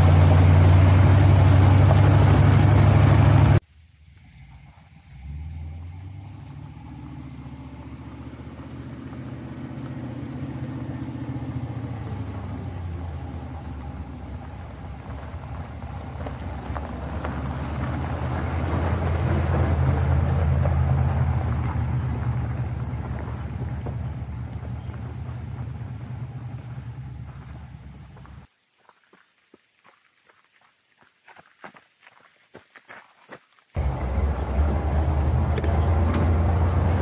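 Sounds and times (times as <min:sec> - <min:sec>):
pickup engine running: 0:00.0 - 0:03.6, 0:04.2 - 0:28.5, 0:33.8 - 0:37.0
road noise: 0:00.0 - 0:28.6, 0:33.8 - 0:37.0.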